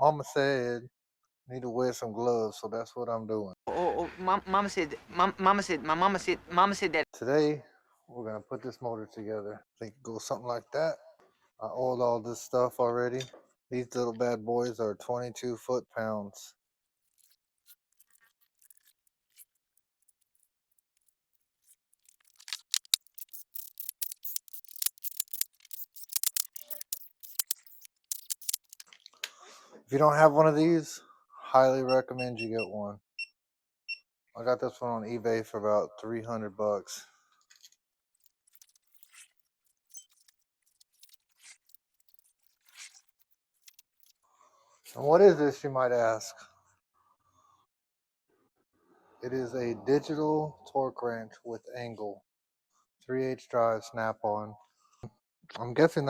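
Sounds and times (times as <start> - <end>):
torque wrench ratchet clicking: 22.0 - 28.8.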